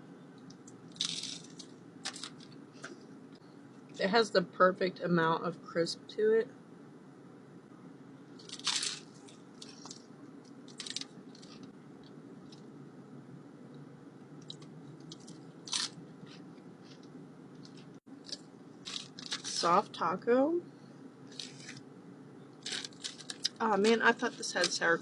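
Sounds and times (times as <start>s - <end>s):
crunchy taco chewing: 0.9s - 2.9s, 8.4s - 12.6s, 14.4s - 19.5s, 22.6s - 23.6s.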